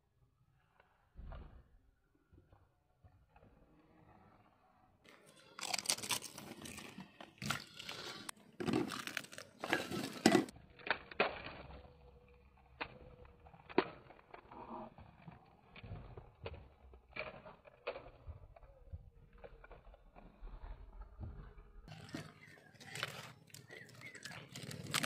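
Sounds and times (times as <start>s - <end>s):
crisp shells crunching: 5.1s - 11.9s, 21.9s - 25.0s.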